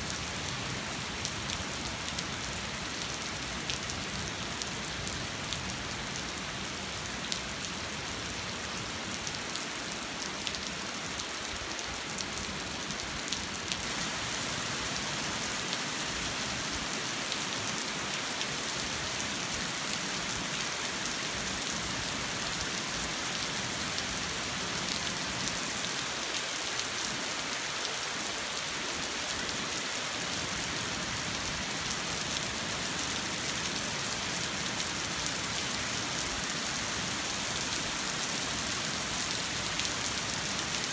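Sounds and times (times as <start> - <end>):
rain pattering on street: 0.1 - 40.9.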